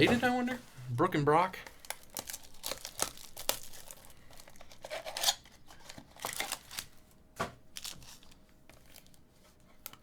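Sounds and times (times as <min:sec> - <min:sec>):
wrappers crinkling and tearing: 0:01.5 - 0:07.0, 0:07.7 - 0:10.0.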